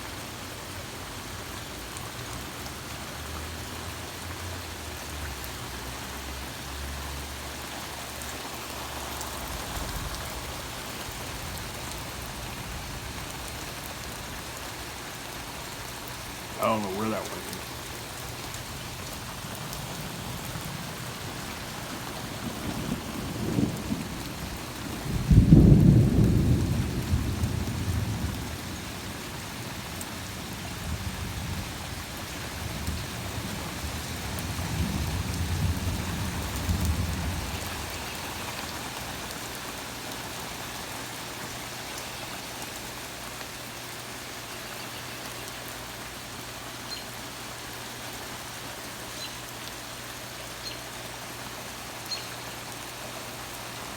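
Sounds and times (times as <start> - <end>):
heavy rain: 0.0 - 53.9
thunder rumbling: 16.5 - 28.5.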